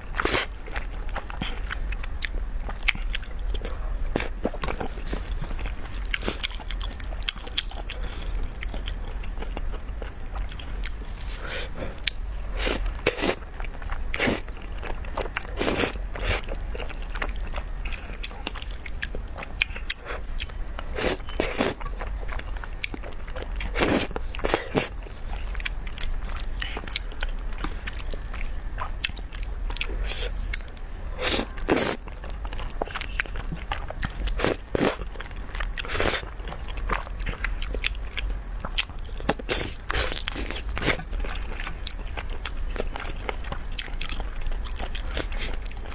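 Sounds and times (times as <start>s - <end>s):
mouth clicks and crunches: 0.1s - 45.9s
person chewing and biting: 0.1s - 45.9s.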